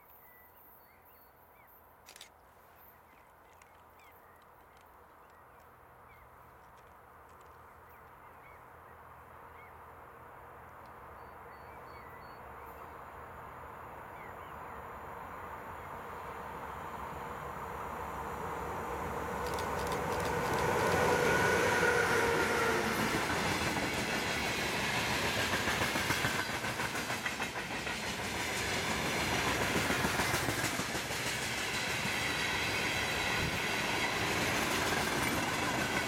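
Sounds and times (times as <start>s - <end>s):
freight train rumble: 8.2s - 36.0s.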